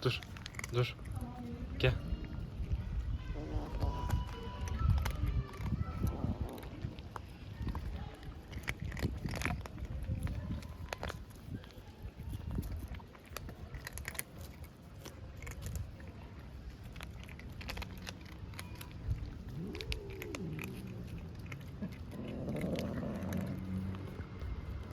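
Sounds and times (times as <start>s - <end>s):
rough cat call: 18.5s - 24.0s.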